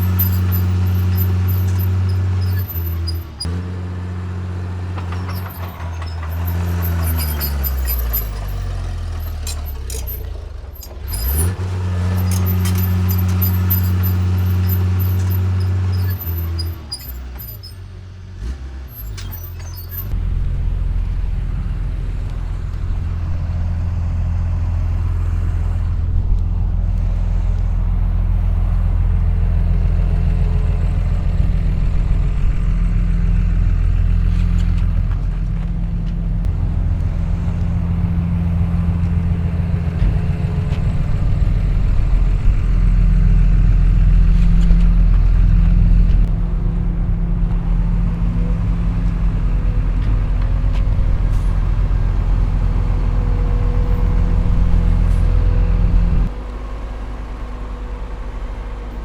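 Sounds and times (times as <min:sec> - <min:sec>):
heavy diesel engine droning: 0:00.0 - 0:59.0.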